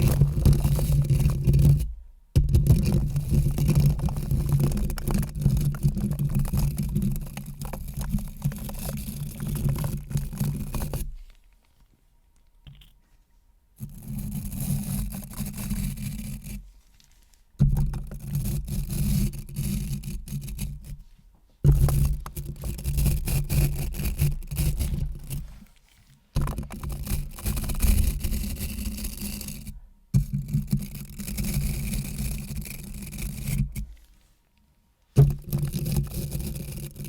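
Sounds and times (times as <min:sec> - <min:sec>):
close-up scraping and rubbing: 0:00.0 - 0:11.9, 0:12.6 - 0:34.5, 0:35.1 - 0:37.0.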